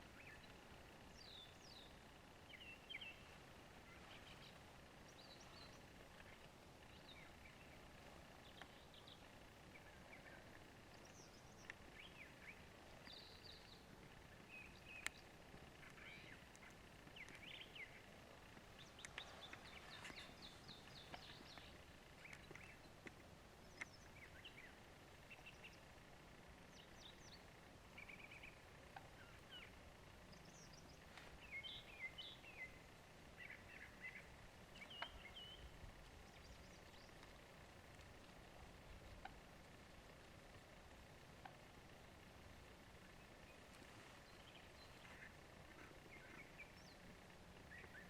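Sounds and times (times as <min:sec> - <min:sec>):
faint songbirds chirping: 0:00.0 - 0:48.0
low steady hiss: 0:00.0 - 0:48.0
soft clicks: 0:11.6 - 0:11.9.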